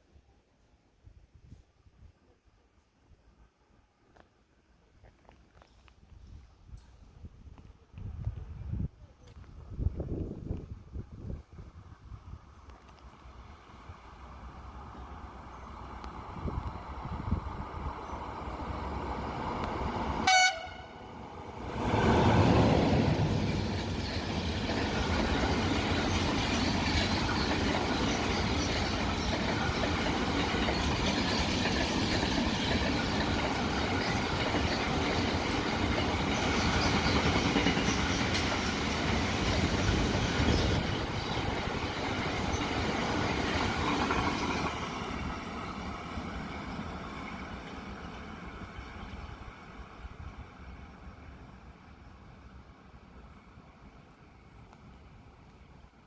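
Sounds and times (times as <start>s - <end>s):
train rumbling on rails: 6.0s - 56.0s
train horn blast: 20.2s - 21.2s.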